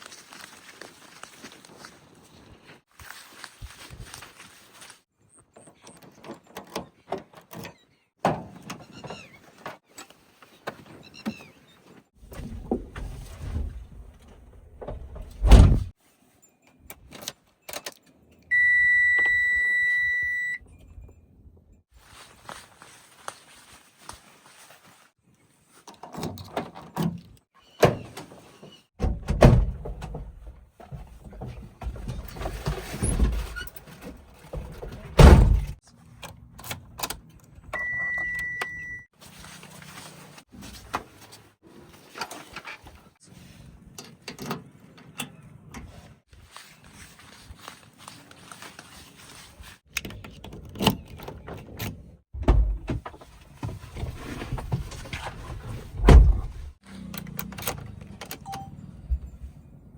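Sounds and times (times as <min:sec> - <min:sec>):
high beep: 0:18.5 - 0:20.6, 0:37.8 - 0:39.0.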